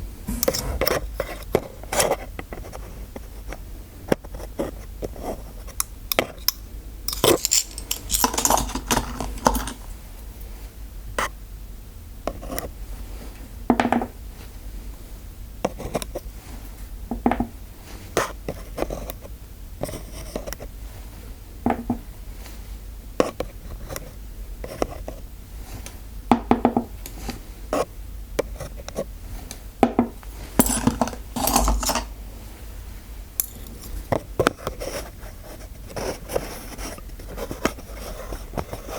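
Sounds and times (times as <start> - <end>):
metal instruments clinking: 6.4 - 10.1, 30.3 - 32.2, 33.4 - 34.0
metal scratching: 7.1 - 10.0, 30.5 - 32.1.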